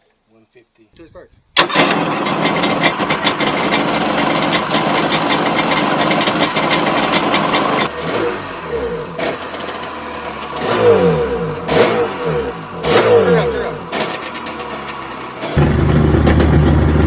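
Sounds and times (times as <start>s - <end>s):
engine pops: 1.6s - 7.9s, 13.9s - 17.0s
two-stroke watercraft engine running: 1.6s - 17.0s.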